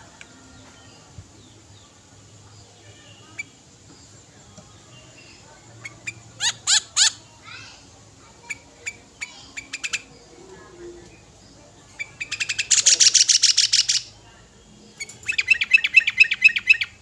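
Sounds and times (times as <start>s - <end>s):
bird chirping: 0.6s - 7.2s, 8.4s - 17.0s
loud bird notes: 14.9s - 17.0s.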